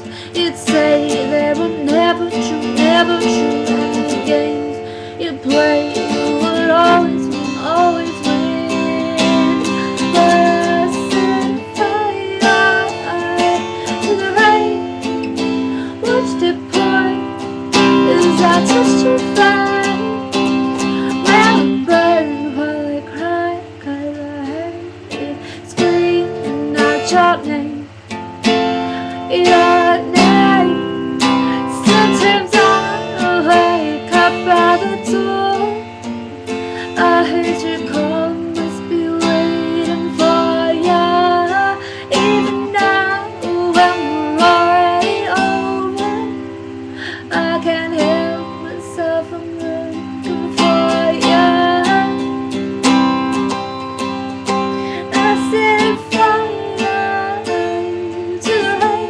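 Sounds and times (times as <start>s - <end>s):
person singing: 0.0s - 53.7s, 54.5s - 59.0s
strummed acoustic guitar: 0.0s - 59.0s.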